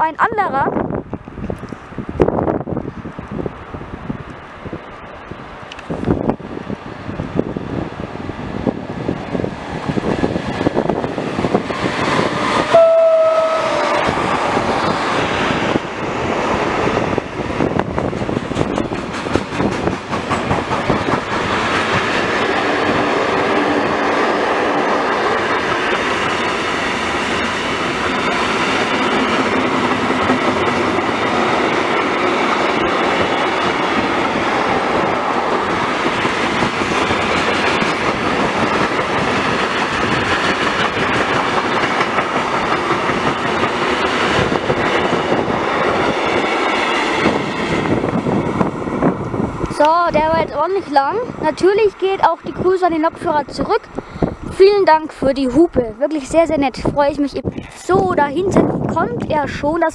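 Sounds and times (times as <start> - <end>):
train wheels clattering on rails: 9.0 - 55.0.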